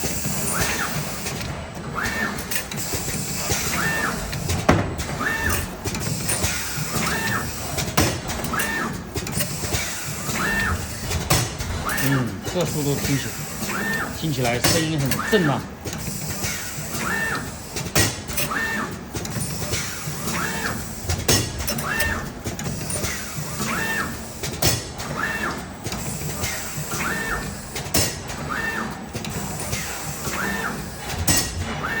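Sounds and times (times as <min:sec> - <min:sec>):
sharp mechanical clacks: 0:00.1 - 0:31.8
steady mechanical rumble: 0:02.9 - 0:09.3.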